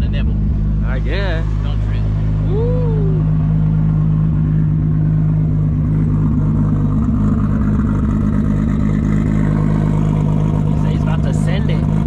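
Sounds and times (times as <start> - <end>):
car engine running loud: 0.0 - 12.0.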